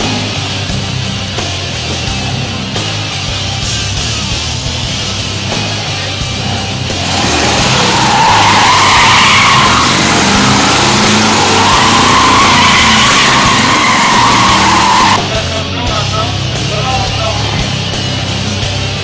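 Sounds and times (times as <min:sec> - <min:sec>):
rock music: 0:00.0 - 0:19.0
car tyres squealing: 0:05.2 - 0:15.4.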